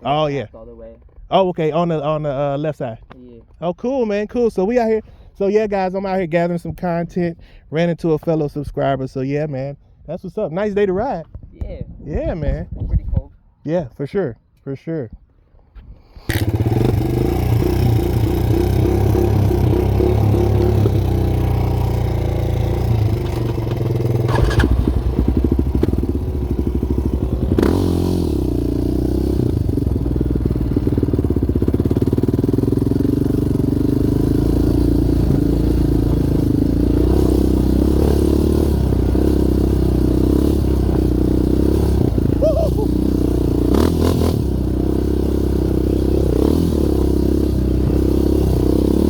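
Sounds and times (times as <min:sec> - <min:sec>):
quad bike engine running: 0:16.3 - 0:49.0.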